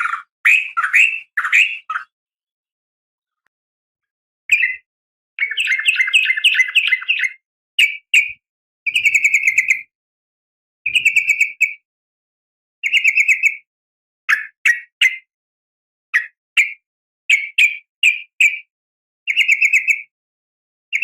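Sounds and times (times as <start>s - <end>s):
bird chattering calls: 0.0s - 2.1s, 5.4s - 8.3s, 8.9s - 9.8s, 10.9s - 11.8s.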